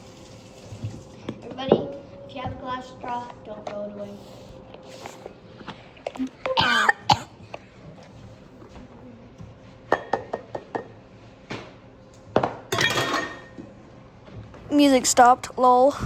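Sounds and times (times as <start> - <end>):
glassware and dishes clinking: 12.7 - 13.6.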